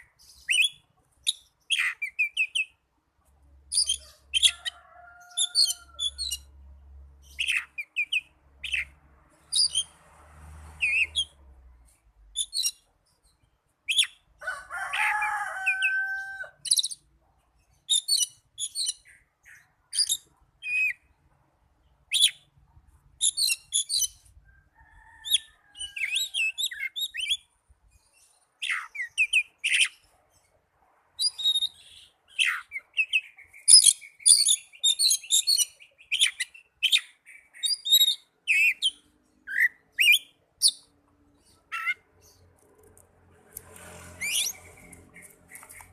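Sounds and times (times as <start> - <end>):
bird singing chirps and whistles: 0.0 - 2.7, 13.9 - 14.2, 22.1 - 22.4, 31.2 - 40.9.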